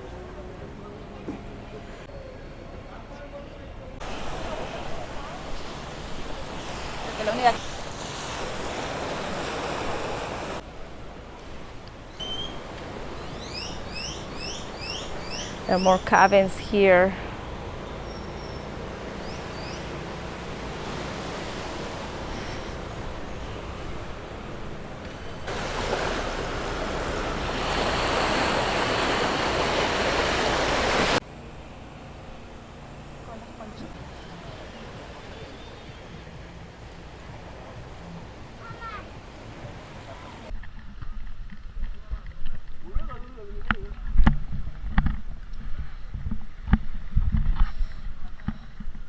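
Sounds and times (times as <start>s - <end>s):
ocean surf washing in: 4.0s - 31.2s, 33.5s - 40.6s
bird chirping: 12.1s - 20.0s
wind on microphone: 39.2s - 49.0s.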